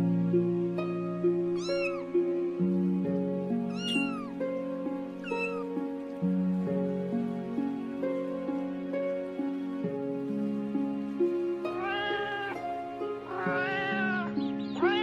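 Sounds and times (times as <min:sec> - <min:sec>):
background music: 0:00.0 - 0:15.0
kitten meowing: 0:01.6 - 0:02.1, 0:03.7 - 0:04.4, 0:05.2 - 0:05.8, 0:11.6 - 0:15.0.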